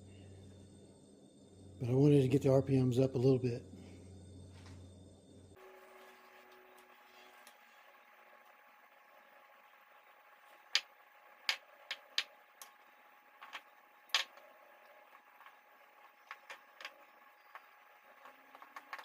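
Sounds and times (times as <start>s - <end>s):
faint steady hum: 0.0s - 19.0s
sharp clicks and knocks: 10.7s - 12.8s, 13.4s - 14.5s, 16.2s - 19.0s.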